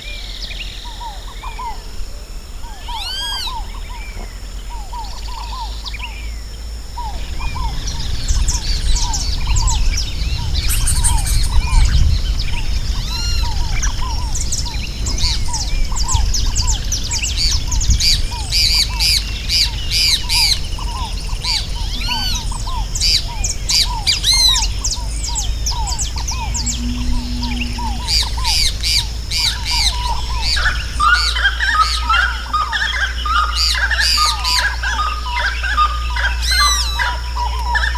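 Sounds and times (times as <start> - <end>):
birds singing and calling: 0.0 - 37.9
low-pitched repeating bird call: 18.3 - 37.2
low rumble: 21.2 - 31.2.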